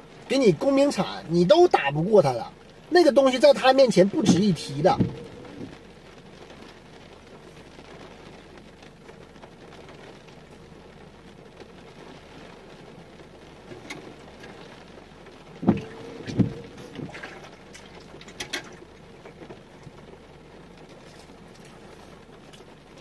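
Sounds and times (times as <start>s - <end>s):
rain on car roof: 0.0s - 23.0s
loud thumps: 4.2s - 5.8s, 15.6s - 17.4s.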